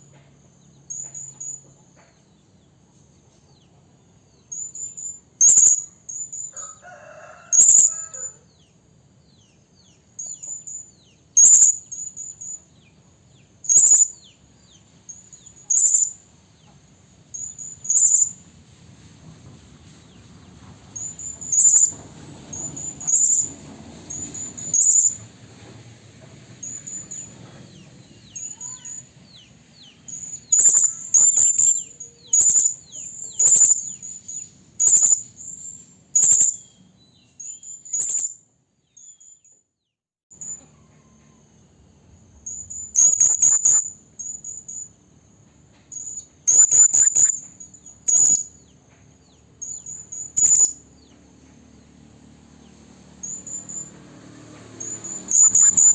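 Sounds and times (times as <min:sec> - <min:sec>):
parrot shrill chirps: 0:04.5 - 0:08.4, 0:11.4 - 0:12.5, 0:13.7 - 0:14.2, 0:15.6 - 0:16.2, 0:28.4 - 0:29.0, 0:30.1 - 0:35.6, 0:36.2 - 0:36.6, 0:42.5 - 0:44.4, 0:46.0 - 0:47.4, 0:48.0 - 0:48.5, 0:49.6 - 0:50.8, 0:54.8 - 0:55.9.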